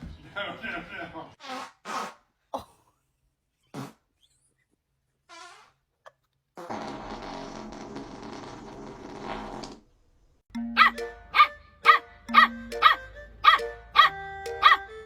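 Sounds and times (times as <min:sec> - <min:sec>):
background music: 0:10.5 - 0:15.0
dog barking: 0:10.8 - 0:14.8.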